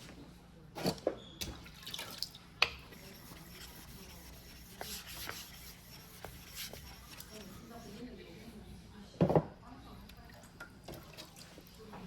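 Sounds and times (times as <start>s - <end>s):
water dripping and splashing: 1.6s - 2.4s.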